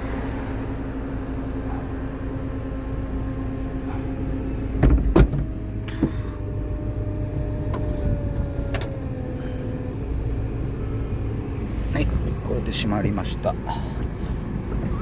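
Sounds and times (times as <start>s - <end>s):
heavy clunks of roof: 4.8s - 6.2s.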